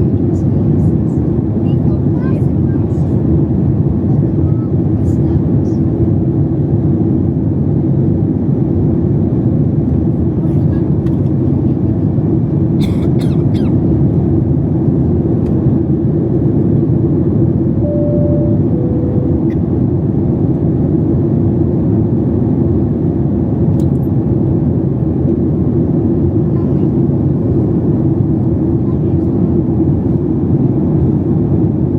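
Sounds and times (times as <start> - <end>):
airliner cabin engine noise: 0.0 - 31.9
two-tone cabin chime: 17.8 - 19.8.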